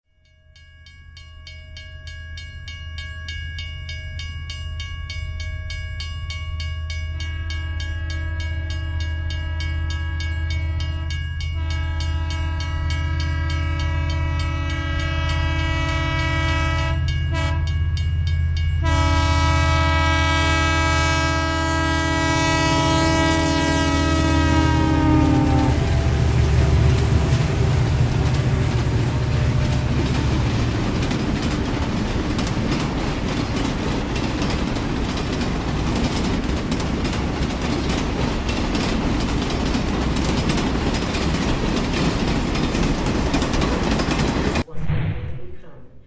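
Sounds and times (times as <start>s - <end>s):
train rumbling: 4.6s - 46.0s
train horn chord: 7.4s - 17.8s, 18.8s - 31.0s
wheels clacking on rail joints: 25.5s - 44.6s.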